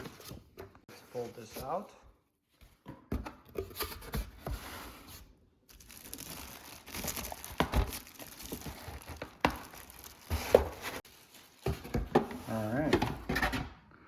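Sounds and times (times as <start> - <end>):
packaging crinkling and rustling: 5.7 - 12.8.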